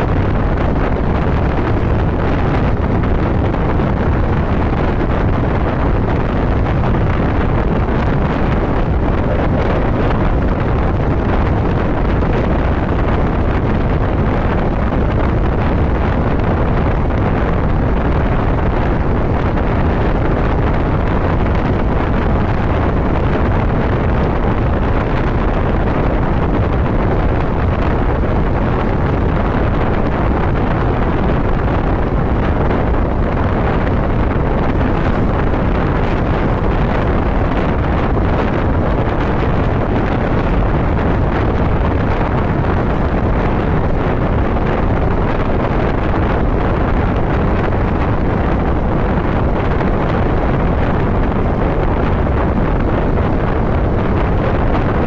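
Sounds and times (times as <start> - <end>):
road noise: 0.0 - 55.0
wind rushing over microphone: 0.0 - 55.0.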